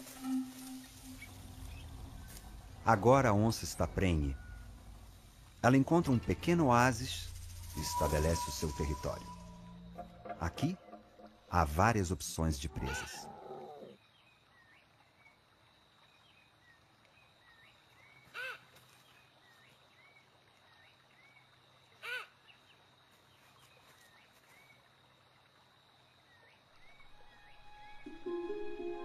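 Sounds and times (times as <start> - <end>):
faint bird chirps: 0.1 - 5.2, 6.7 - 11.5.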